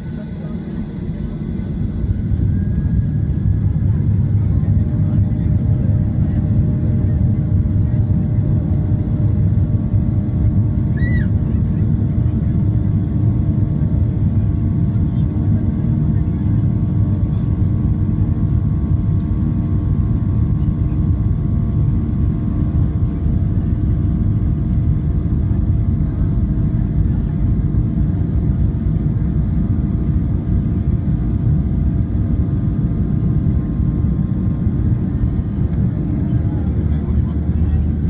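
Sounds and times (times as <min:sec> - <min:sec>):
airplane cabin rumble: 0:00.0 - 0:38.0.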